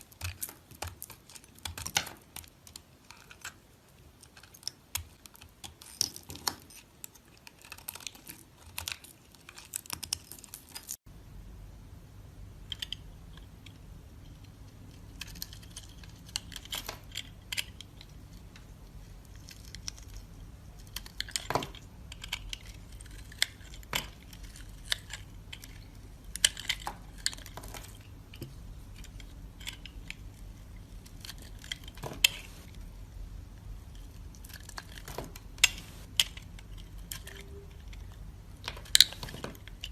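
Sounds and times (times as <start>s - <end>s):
knife carving soap: 0.0s - 11.0s, 14.2s - 32.8s, 33.9s - 39.9s
low steady hum: 10.2s - 39.9s.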